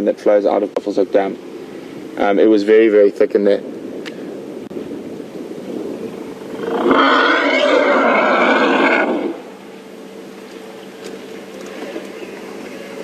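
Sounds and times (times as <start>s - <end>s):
elephant trumpeting: 6.3s - 9.5s.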